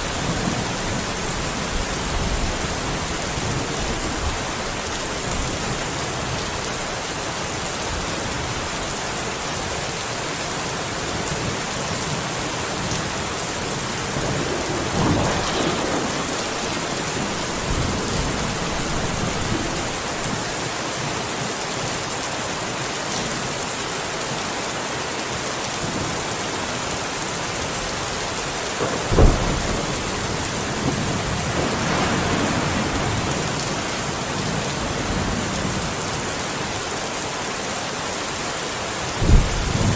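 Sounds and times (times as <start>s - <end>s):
heavy rain: 0.0s - 39.9s
thunder rumbling: 12.7s - 20.7s, 27.9s - 36.3s
sharp thunderclap: 13.3s - 20.5s, 28.7s - 36.0s.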